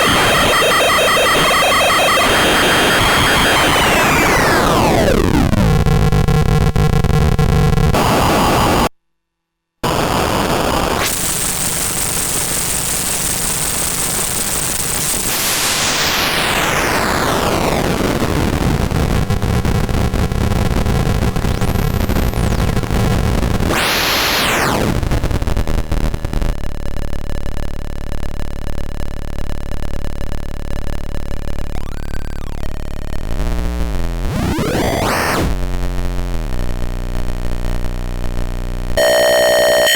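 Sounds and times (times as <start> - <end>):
harsh synthesizer noise: 0.0 - 7.1, 9.8 - 26.6, 31.2 - 37.2
synthesizer pitch sweep: 21.1 - 25.3, 31.4 - 35.6
held synthesizer tones: 21.2 - 24.8, 31.3 - 32.9, 39.0 - 39.9.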